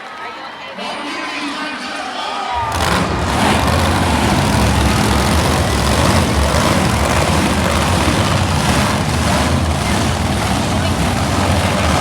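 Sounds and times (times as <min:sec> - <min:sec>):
monster truck engine rumbling: 0:02.5 - 0:12.0.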